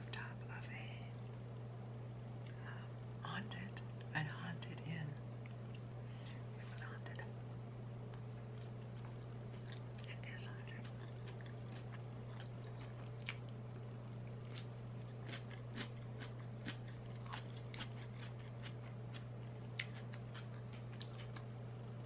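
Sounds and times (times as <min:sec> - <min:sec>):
low hum: 0:00.0 - 0:22.0
wet chewing mouth sounds: 0:08.6 - 0:13.5, 0:14.2 - 0:21.5.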